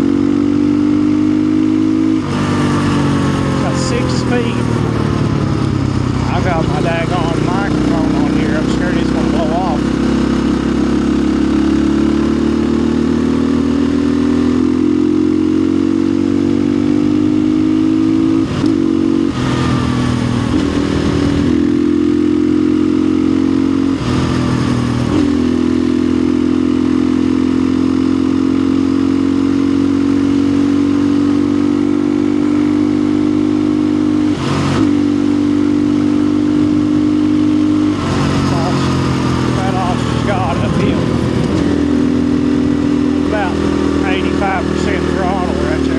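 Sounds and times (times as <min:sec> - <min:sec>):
dirt bike engine running: 0:00.0 - 0:45.9.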